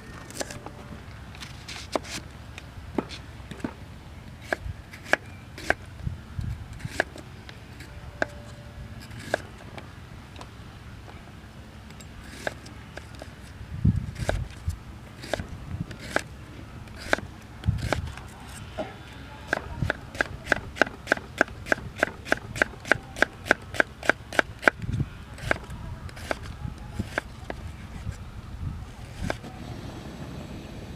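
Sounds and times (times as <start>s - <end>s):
wind buffeting on microphone: 5.8s - 7.0s, 13.6s - 16.2s, 17.0s - 18.2s, 24.5s - 30.9s.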